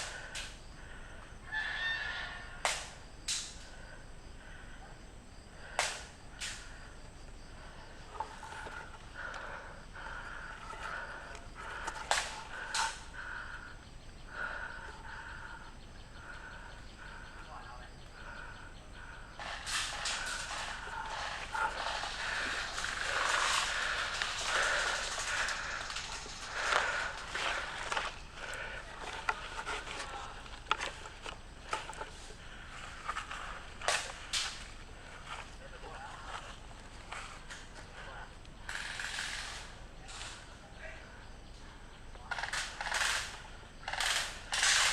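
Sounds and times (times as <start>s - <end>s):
sharp cracks: 8.2s - 13.3s, 19.4s - 34.8s, 42.3s - 44.9s
person moving through brush: 19.6s - 37.4s.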